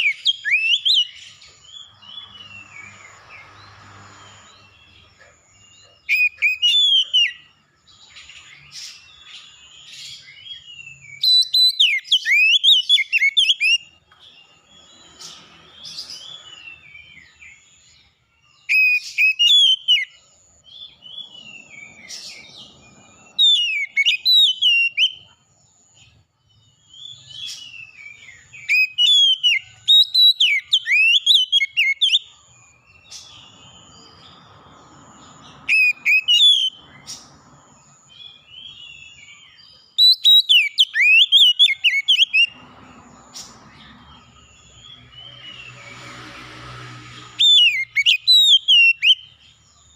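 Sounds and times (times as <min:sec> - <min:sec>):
songbird whistling phrases: 0:00.0 - 0:01.2, 0:06.0 - 0:07.5, 0:10.2 - 0:13.9, 0:18.6 - 0:20.2, 0:23.3 - 0:25.3, 0:27.0 - 0:32.3, 0:35.7 - 0:36.8, 0:38.6 - 0:42.5, 0:47.4 - 0:49.3.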